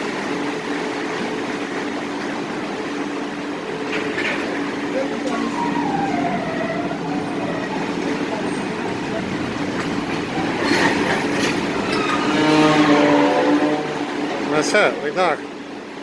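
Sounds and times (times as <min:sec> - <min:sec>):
ferry engines humming: 0:00.0 - 0:16.0
drawn-out falling tone: 0:04.9 - 0:14.1.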